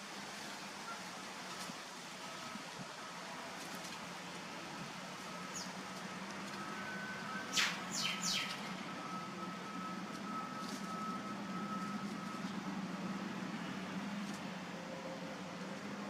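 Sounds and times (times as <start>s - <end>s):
bird calls sweeping downward: 7.4s - 8.8s.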